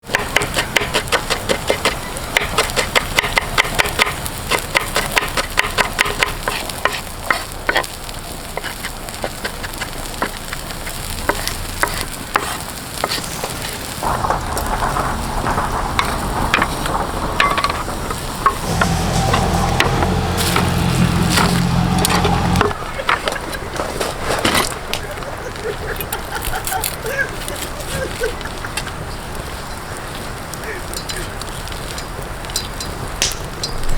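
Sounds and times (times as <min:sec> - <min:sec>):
food sizzling: 0:04.2 - 0:22.8.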